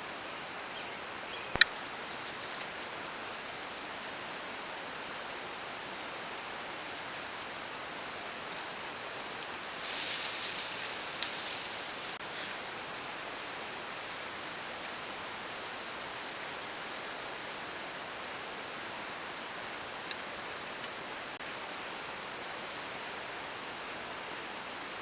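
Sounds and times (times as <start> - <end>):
steady background hiss: 0.0 - 25.0
faint tick: 11.2 - 11.4.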